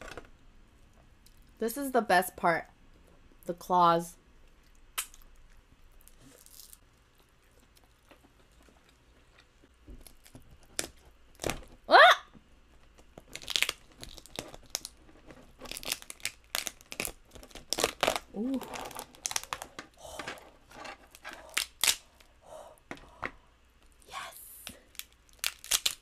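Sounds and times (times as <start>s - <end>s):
crab shell cracking and crunching: 4.4s - 11.8s, 12.8s - 20.0s, 21.1s - 22.4s, 24.7s - 26.0s.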